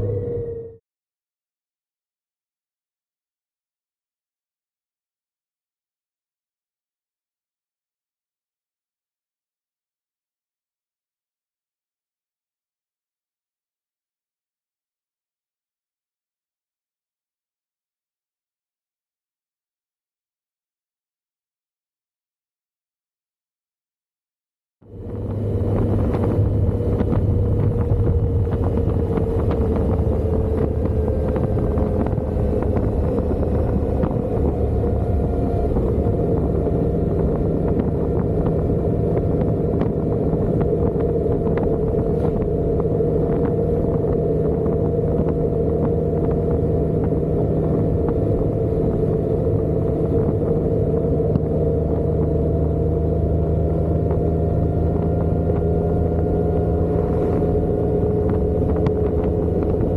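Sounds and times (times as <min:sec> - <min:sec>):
motorcycle engine drone: 0:00.0 - 0:00.8, 0:24.8 - 0:59.9
wind and road noise: 0:00.0 - 0:00.8, 0:24.8 - 0:59.9.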